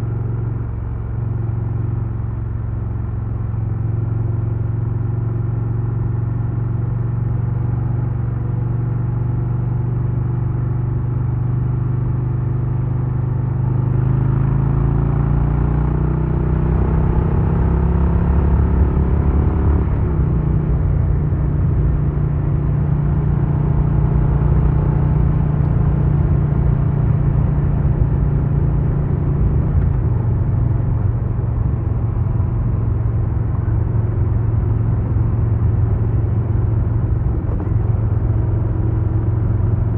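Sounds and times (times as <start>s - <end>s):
motorcycle engine running: 13.1s - 39.9s.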